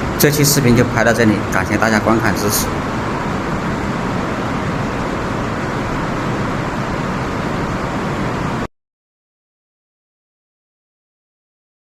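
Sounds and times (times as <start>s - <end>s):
underground river rushing: 0.0s - 8.7s.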